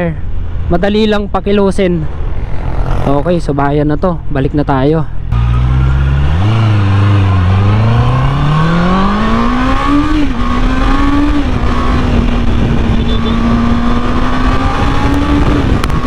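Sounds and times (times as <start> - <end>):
motorcycle engine accelerating: 5.3 - 16.0
wind noise: 5.8 - 16.0.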